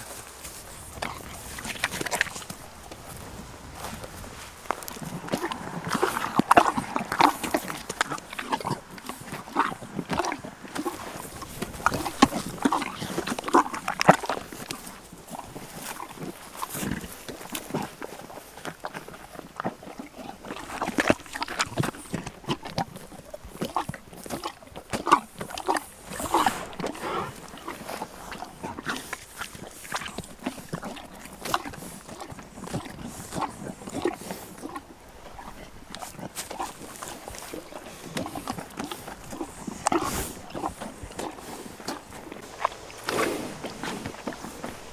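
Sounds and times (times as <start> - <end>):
horses making short sounds: 0.0 - 18.0, 24.4 - 44.9.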